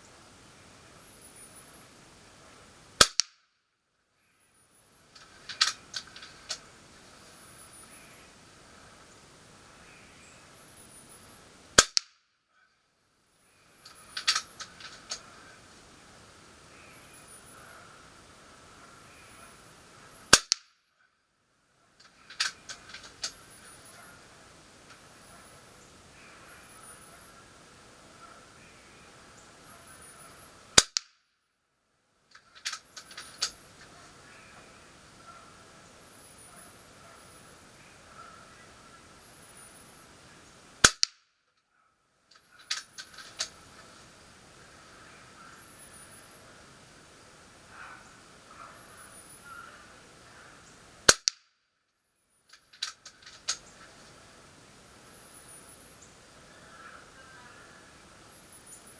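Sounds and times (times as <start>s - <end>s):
air rifle shot crack: 3.0s - 3.4s, 11.8s - 12.2s, 20.3s - 20.7s, 40.8s - 41.2s, 51.0s - 51.5s
small clicks: 5.0s - 8.3s, 13.8s - 15.5s, 22.0s - 25.2s, 32.3s - 34.0s, 42.3s - 44.1s, 51.0s - 51.4s, 52.5s - 54.2s.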